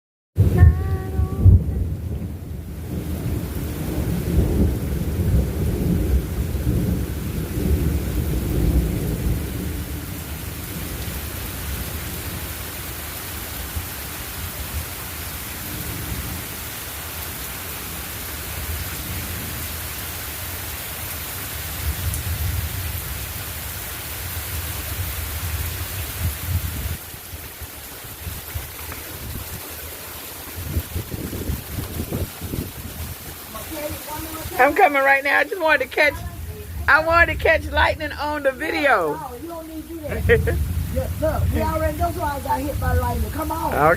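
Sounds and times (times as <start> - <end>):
rolling thunder: 0.4 - 12.4, 30.5 - 35.4, 39.8 - 43.9
steady rain hissing: 0.4 - 43.9.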